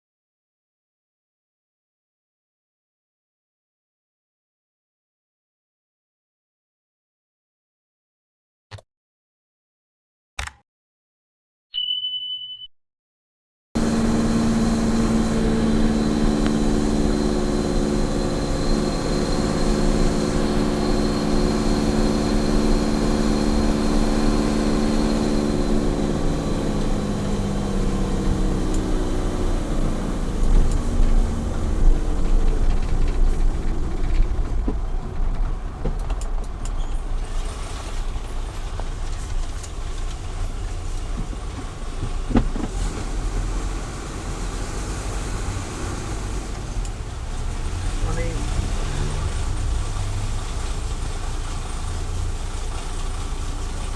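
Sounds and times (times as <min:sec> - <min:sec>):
road and wind noise: 0:13.8 - 0:53.9
truck engine running: 0:13.8 - 0:53.9.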